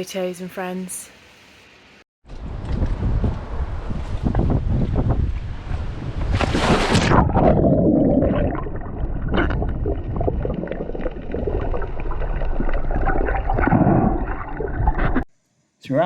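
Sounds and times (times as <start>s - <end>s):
muffled underwater gurgling: 7.1s - 15.2s.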